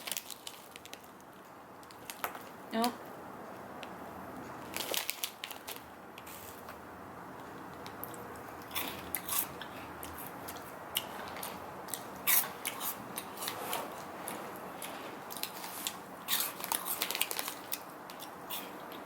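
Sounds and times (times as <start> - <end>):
chewing crunchy snack: 8.0 - 19.0.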